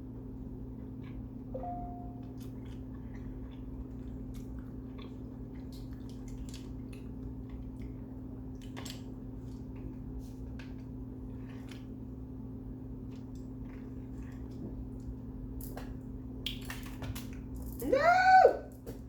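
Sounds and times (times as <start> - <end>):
steady low hum: 0.0 - 19.0
person chewing food: 0.6 - 15.3.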